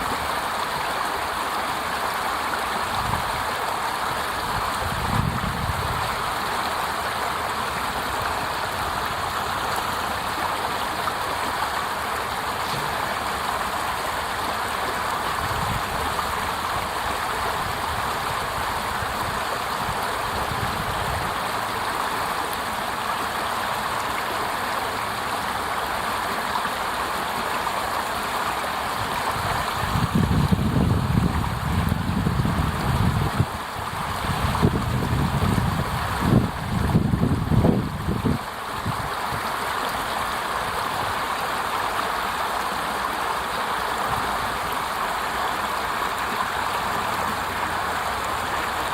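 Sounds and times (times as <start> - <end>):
water cascade splashing over rocks: 0.0 - 48.9
wind gusts on microphone: 4.4 - 6.3, 15.4 - 16.3, 29.0 - 39.2.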